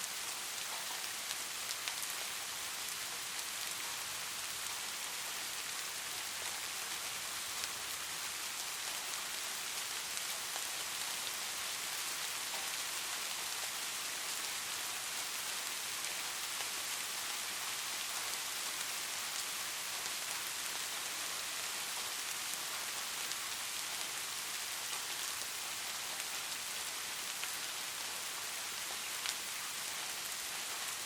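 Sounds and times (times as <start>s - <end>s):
light rain falling: 0.0s - 31.0s.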